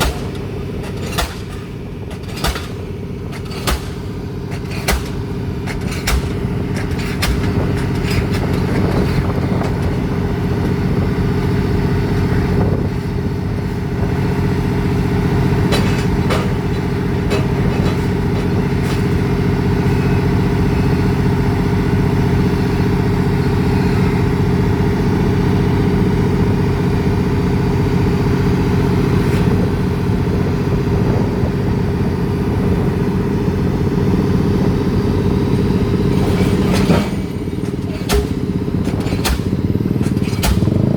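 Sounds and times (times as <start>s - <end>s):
metal clanks and knocks: 0.0s - 10.8s, 15.5s - 19.4s, 35.5s - 40.9s
heavy diesel engine running: 0.0s - 40.9s.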